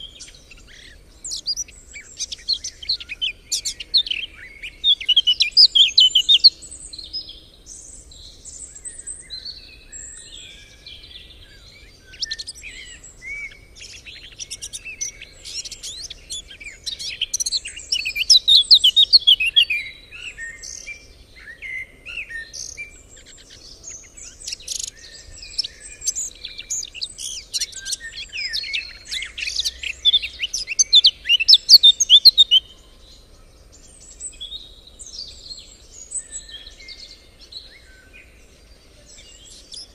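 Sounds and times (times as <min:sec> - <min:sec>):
small birds chirping and singing: 0:00.0 - 0:39.9.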